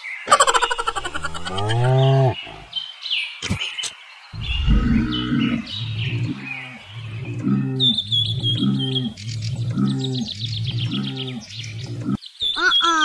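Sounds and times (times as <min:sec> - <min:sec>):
small birds chirping: 0:00.0 - 0:13.0
low pulsing sound: 0:04.4 - 0:12.2.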